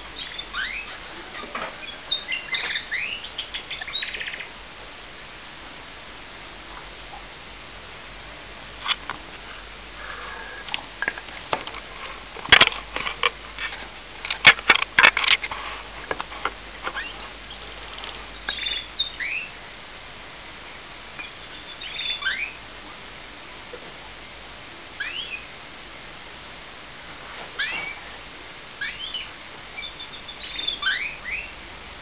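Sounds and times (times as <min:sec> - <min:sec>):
canary chirping: 0:00.0 - 0:04.7, 0:16.9 - 0:19.6, 0:21.2 - 0:22.6, 0:25.0 - 0:25.5, 0:27.6 - 0:28.1, 0:28.8 - 0:31.6.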